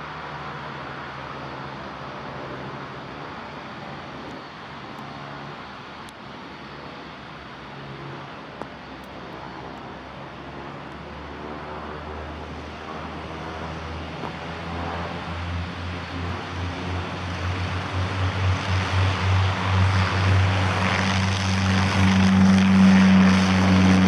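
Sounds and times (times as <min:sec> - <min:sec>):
turboprop engines droning: 0:00.0 - 0:24.0
deep low drone: 0:11.0 - 0:24.0.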